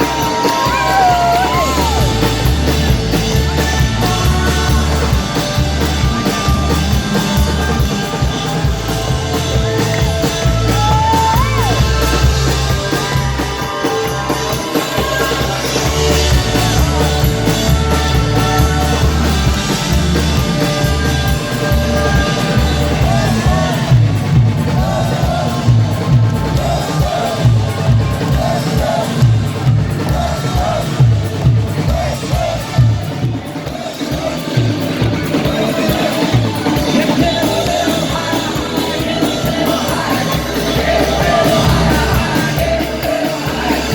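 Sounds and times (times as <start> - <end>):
person singing: 0.0 - 31.1, 33.6 - 43.9
drums: 0.0 - 43.9
heavy bass line: 36.0 - 43.9.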